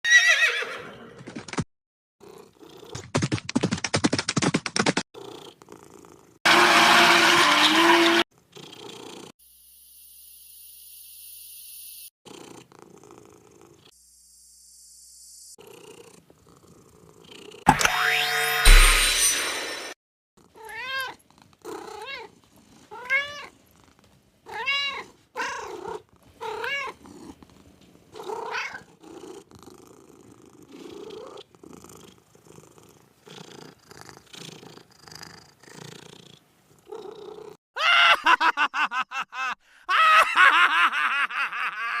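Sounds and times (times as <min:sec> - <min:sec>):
cat purring: 0:12.3 - 0:13.9, 0:15.6 - 0:17.6, 0:25.6 - 0:37.6
cat meowing: 0:22.9 - 0:23.5, 0:24.5 - 0:27.0.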